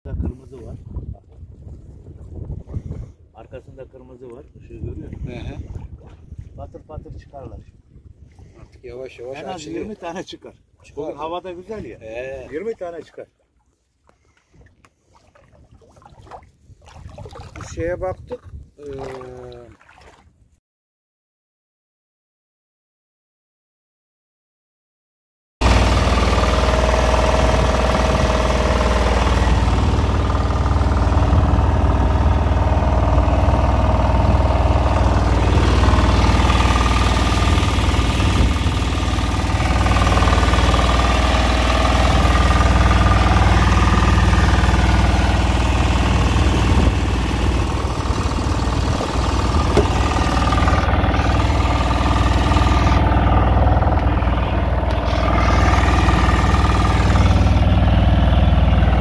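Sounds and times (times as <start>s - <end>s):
boat engine rumbling: 0.0s - 20.2s, 25.6s - 59.0s.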